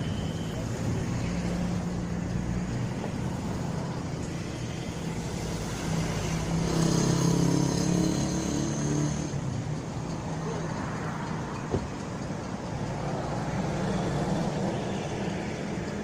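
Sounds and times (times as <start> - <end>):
hum of traffic: 0.0 - 16.0
vehicle engine passing close: 5.2 - 11.4.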